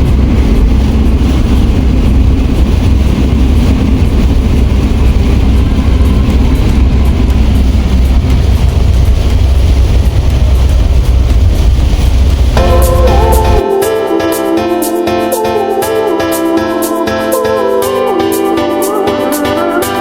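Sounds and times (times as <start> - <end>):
low rumble of vehicle in motion: 0.0 - 13.6.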